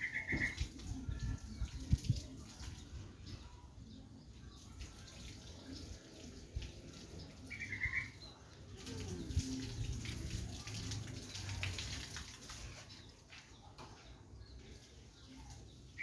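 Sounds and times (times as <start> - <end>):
bird chirp: 0.0 - 6.2, 6.9 - 9.5.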